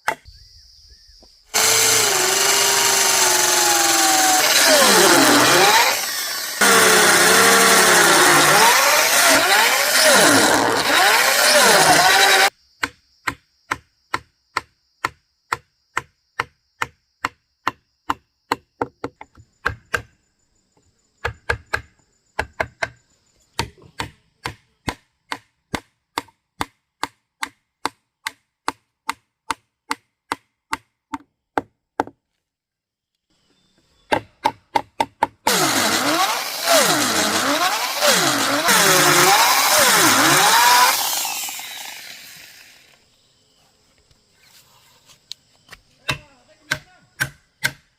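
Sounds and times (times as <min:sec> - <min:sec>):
loud continuous cutting noise: 0:01.6 - 0:12.5, 0:35.5 - 0:43.0.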